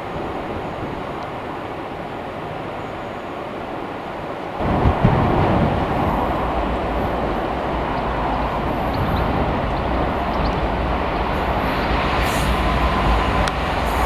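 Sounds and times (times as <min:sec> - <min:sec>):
train wheels rumbling on rails: 0:04.6 - 0:14.0.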